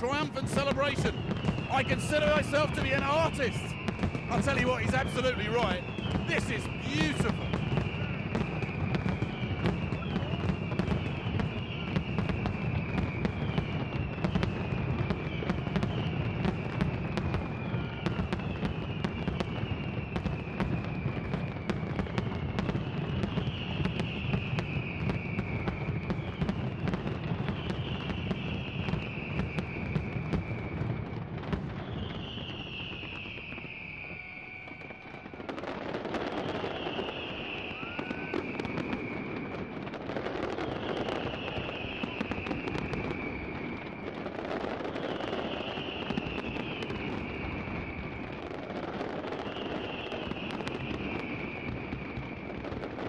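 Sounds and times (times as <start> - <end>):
falling firework whistles: 0.0 - 53.0
fireworks bangs and crackles: 0.0 - 53.0.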